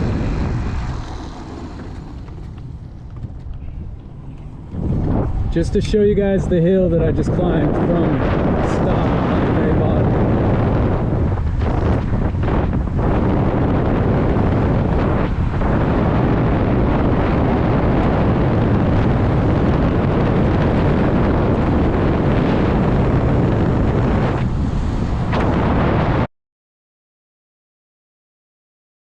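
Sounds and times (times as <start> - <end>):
wind rushing over microphone: 0.0 - 26.3.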